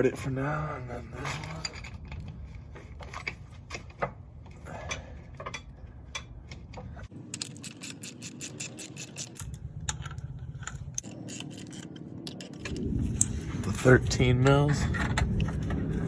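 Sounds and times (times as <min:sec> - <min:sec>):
metal clicks and knocks: 0:03.0 - 0:07.9
hand ratchet clicking: 0:07.3 - 0:10.1.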